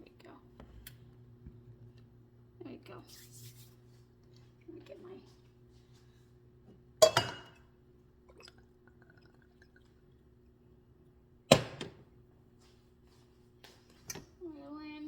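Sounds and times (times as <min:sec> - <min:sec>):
faint steady hum: 0:00.0 - 0:15.0
cookware clanking: 0:07.0 - 0:07.6.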